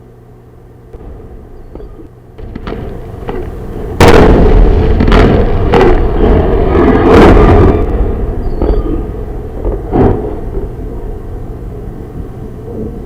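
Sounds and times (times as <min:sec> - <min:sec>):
explosion rumble with crackles: 0:00.9 - 0:13.0
loud blast: 0:01.0 - 0:11.2.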